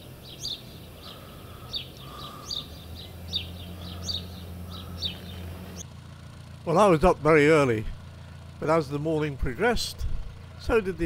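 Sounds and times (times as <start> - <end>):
small bird chirping: 0.0 - 5.8
distant light aircraft engine drone: 0.0 - 11.0.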